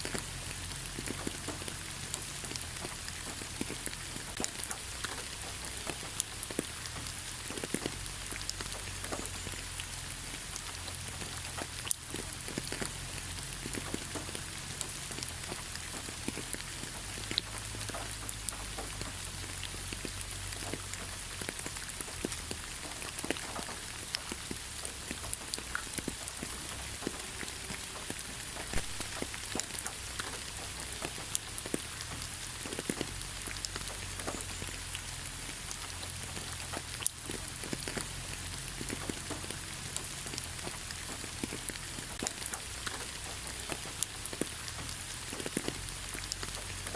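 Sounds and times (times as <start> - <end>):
raindrops tapping: 0.0 - 46.9
steady rain hiss: 0.0 - 46.9.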